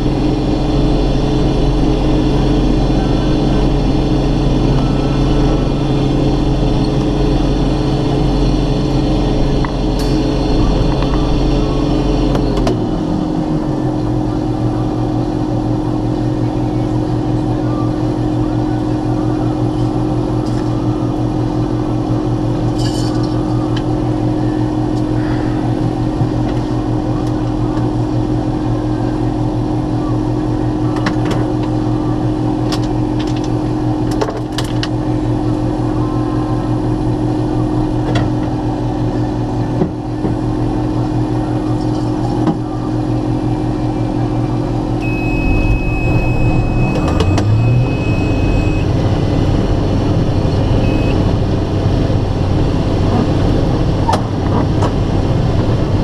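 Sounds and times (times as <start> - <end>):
threshing machinery running: 0.0 - 16.3, 44.6 - 56.0
combine harvester engine: 0.0 - 56.0.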